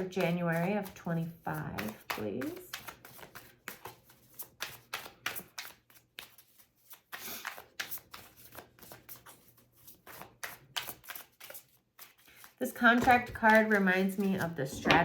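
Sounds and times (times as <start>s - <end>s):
cards being shuffled: 0.0s - 15.0s
cards sliding rustle: 0.0s - 15.0s.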